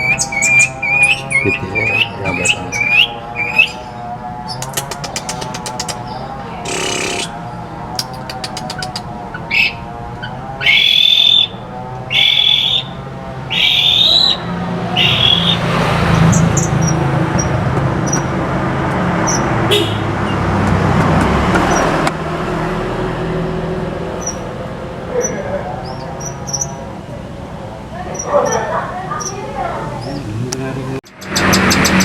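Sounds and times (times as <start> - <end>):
bird singing loud phrases: 0.0 - 18.2, 24.2 - 27.0, 28.0 - 32.0
high bird chirps: 0.0 - 18.3, 24.2 - 24.6, 25.2 - 26.9, 31.0 - 32.0
vehicle passing: 0.0 - 32.0.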